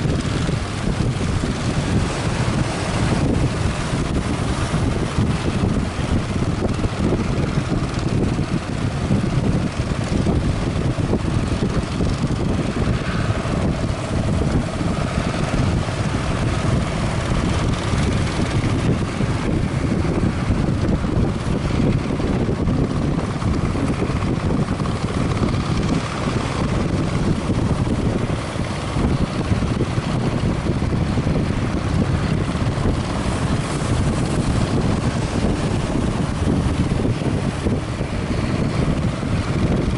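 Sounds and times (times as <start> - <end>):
boat engine droning: 0.0 - 39.9
wind buffeting microphone: 0.0 - 39.9.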